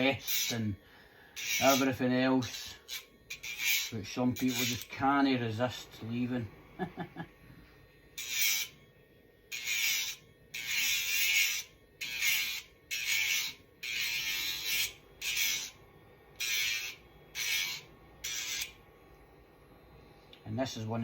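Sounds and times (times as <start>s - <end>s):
electric nail grinder whine: 0.0s - 5.2s, 8.0s - 18.8s.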